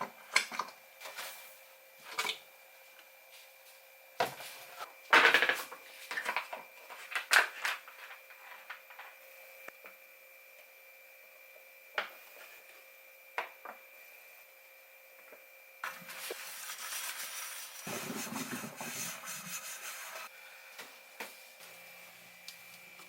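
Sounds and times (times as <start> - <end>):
scraping and rubbing: 16.0 - 20.3.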